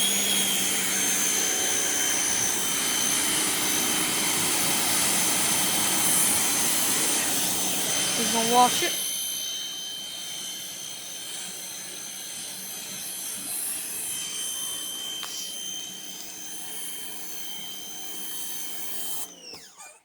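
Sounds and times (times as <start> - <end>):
pressure washer motor whine: 0.0 - 20.0.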